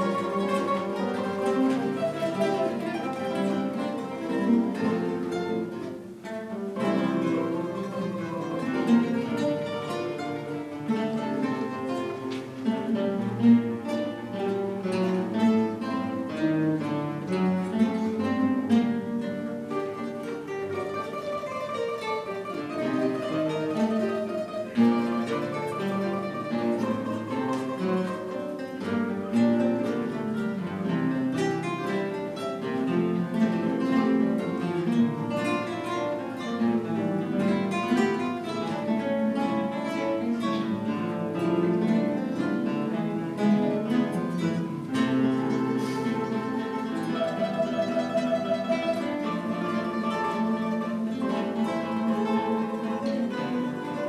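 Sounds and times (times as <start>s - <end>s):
guitar ensemble playing: 0.0s - 54.0s.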